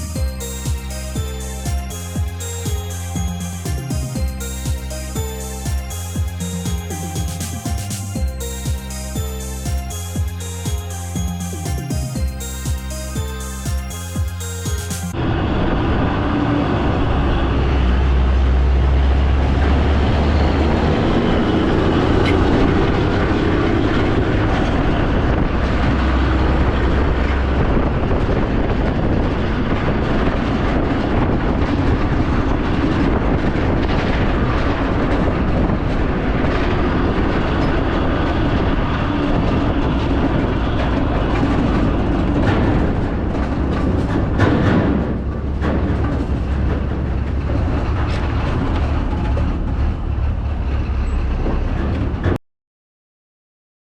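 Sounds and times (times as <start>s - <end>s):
road noise: 0.0s - 52.4s
vehicle rumble: 0.0s - 52.4s
rattles and clicks: 29.0s - 52.4s.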